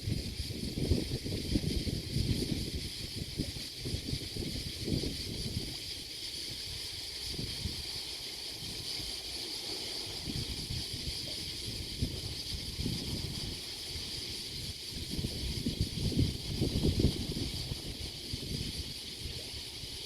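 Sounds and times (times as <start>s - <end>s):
wind buffeting microphone: 0.0s - 5.9s, 10.2s - 20.0s
high-pitched hiss: 0.0s - 20.0s.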